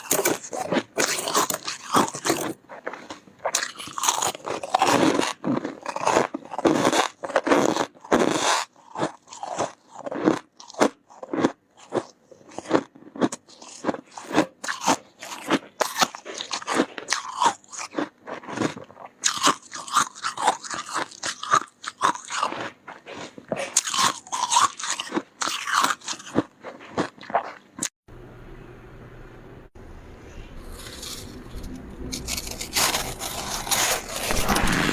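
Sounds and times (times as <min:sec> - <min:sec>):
crunching and chewing frost: 0:00.0 - 0:27.9, 0:30.6 - 0:34.9.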